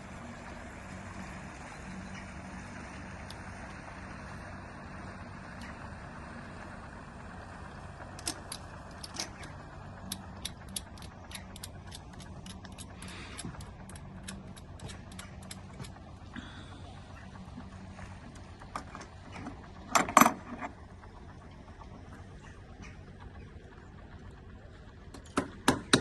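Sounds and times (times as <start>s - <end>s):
boat motor running: 0.0s - 26.0s
sharp metallic clicks: 8.2s - 16.1s.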